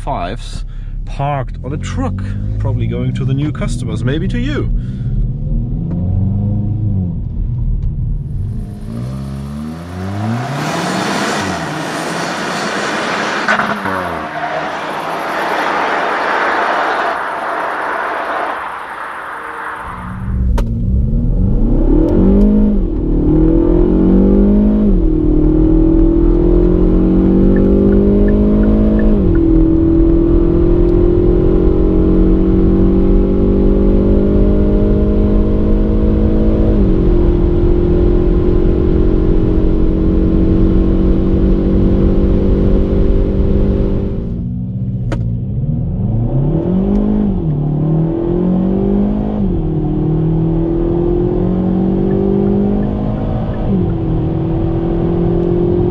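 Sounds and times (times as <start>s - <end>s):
car engine accelerating: 0.0s - 55.9s
gear upshifts: 8.3s - 22.6s.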